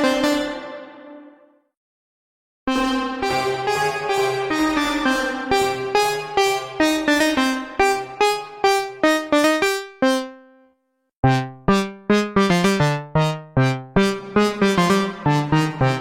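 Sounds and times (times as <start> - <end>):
synthesizer plucky notes: 2.7 - 8.0, 11.2 - 16.0.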